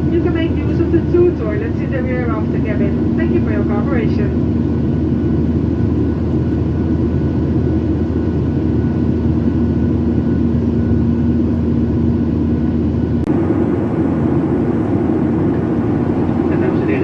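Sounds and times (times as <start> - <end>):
airliner cabin roar: 0.0 - 17.0
faint steady hum: 13.3 - 17.0.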